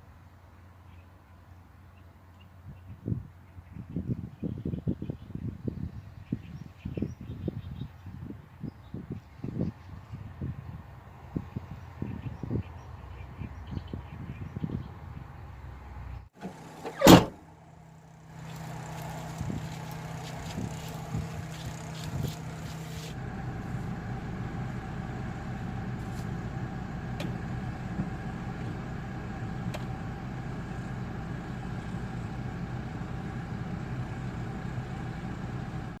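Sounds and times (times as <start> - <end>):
small car engine humming: 11.6 - 36.0.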